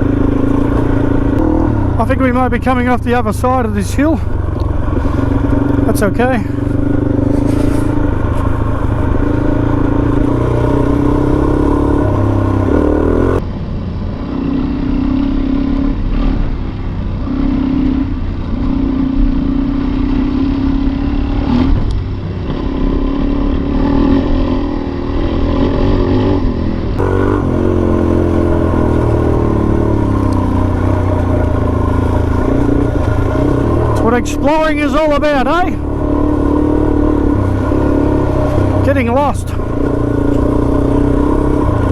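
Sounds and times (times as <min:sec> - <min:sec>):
dirt bike engine running: 0:00.0 - 0:41.9.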